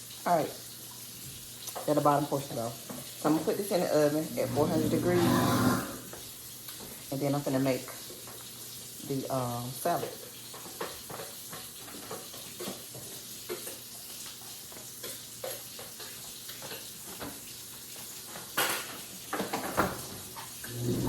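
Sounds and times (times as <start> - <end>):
dishes and utensils clinking: 18.3 - 21.0.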